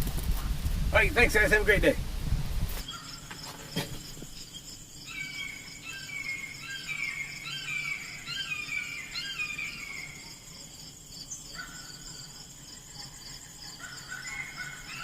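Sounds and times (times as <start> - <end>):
insects chirping: 0.0 - 15.0
high whistled falling calls: 4.1 - 10.4.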